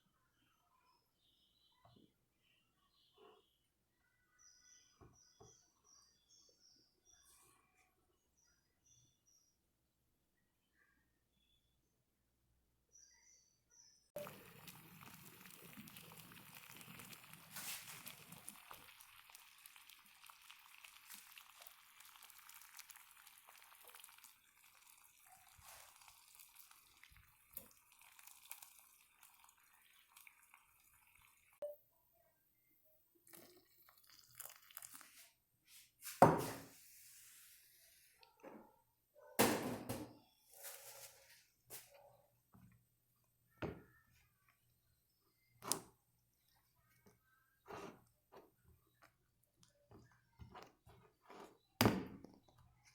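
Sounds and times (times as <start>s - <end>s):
faint wet crackling: 14.2s - 31.6s.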